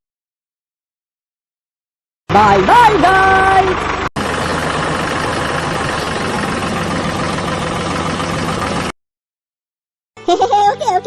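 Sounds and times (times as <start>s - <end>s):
model tractor engine drone: 2.3s - 8.9s.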